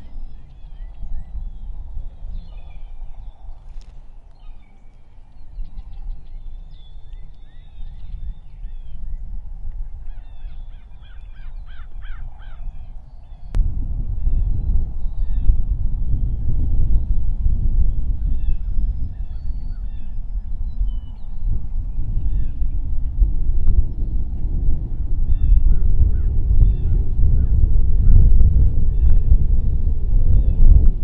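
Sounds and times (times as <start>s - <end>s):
wild birds calling and singing: 0.0s - 9.3s, 9.9s - 13.6s
steady low rumble: 0.0s - 31.0s.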